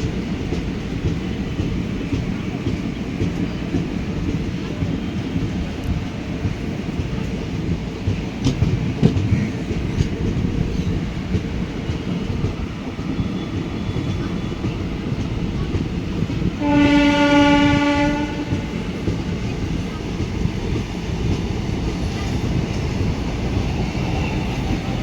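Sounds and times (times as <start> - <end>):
train wheels rumbling: 0.0 - 25.0
train horn: 16.6 - 18.8.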